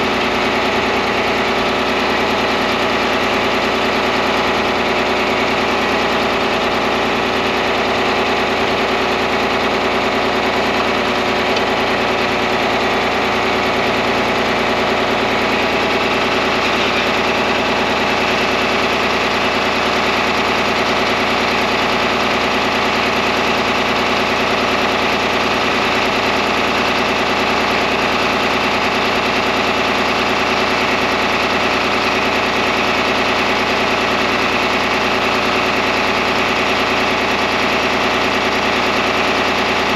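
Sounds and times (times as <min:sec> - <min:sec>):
tractor engine idling: 0:00.0 - 0:39.9.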